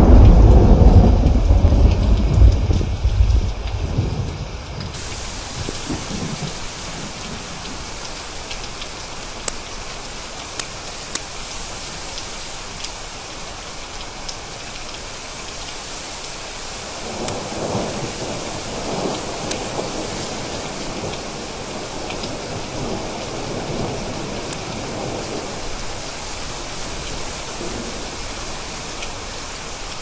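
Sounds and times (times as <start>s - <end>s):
thunder rumbling: 0.0s - 7.9s
steady rain falling: 0.0s - 30.0s
drip-like ticks: 7.6s - 13.0s, 17.2s - 17.8s, 19.5s - 19.8s, 24.5s - 25.4s.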